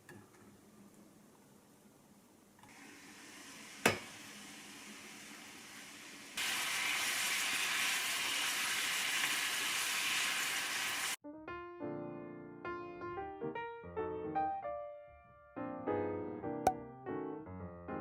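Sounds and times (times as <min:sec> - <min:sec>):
mushrooms sizzling in a frying pan: 0:02.7 - 0:11.2.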